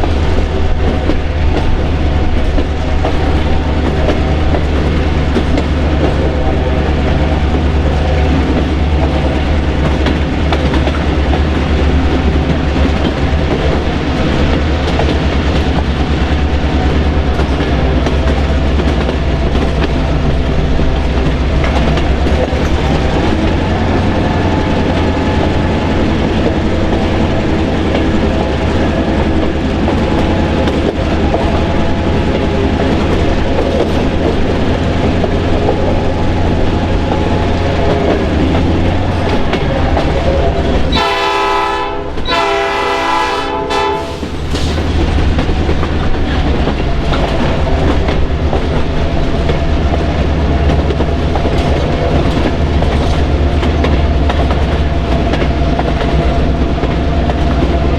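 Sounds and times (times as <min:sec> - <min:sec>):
diesel train engine drone: 0:00.0 - 0:57.9
locomotive horn blasts: 0:40.9 - 0:44.3.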